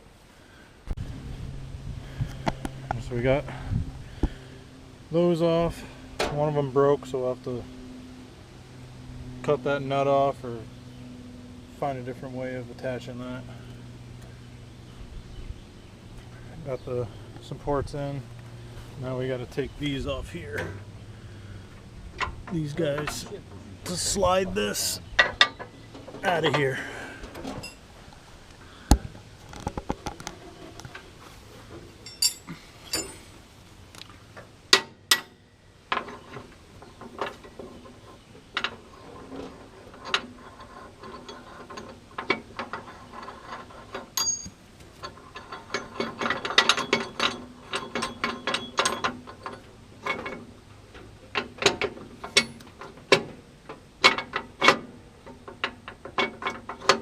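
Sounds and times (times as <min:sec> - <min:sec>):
sharp metal knocks: 0:44.1 - 0:44.6.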